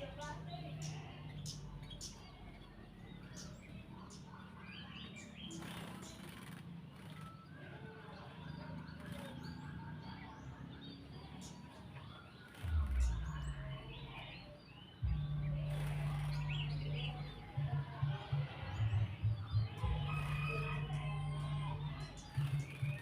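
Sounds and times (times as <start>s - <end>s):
bird chirps and calls: 0.0s - 23.0s
steady low hum: 15.0s - 18.0s.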